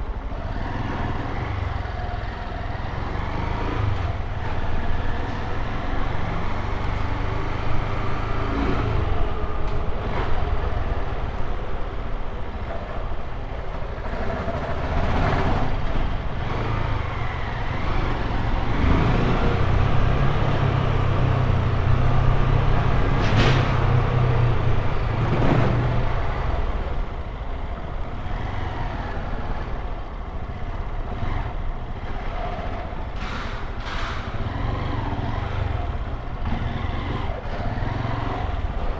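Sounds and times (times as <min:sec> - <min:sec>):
road and wind noise: 0:00.0 - 0:38.9.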